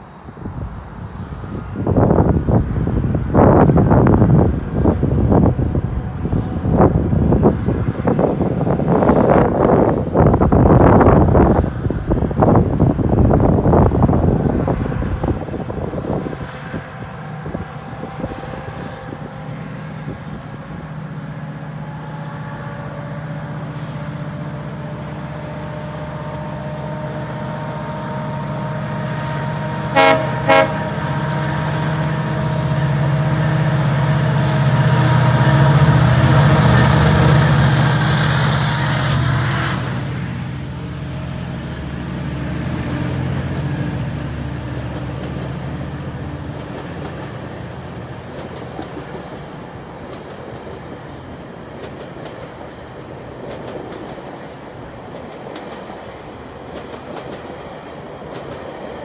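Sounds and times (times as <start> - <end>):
train horn toots: 14.9 - 40.2
wheels clickety-clack: 44.6 - 59.0
hiss: 46.8 - 51.4.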